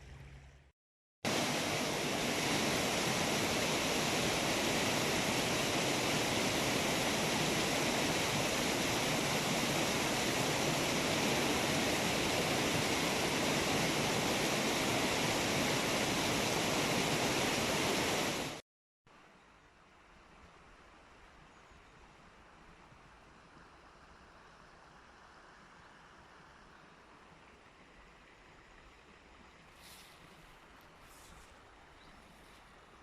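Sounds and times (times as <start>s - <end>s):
fast-flowing stream: 1.3s - 18.6s.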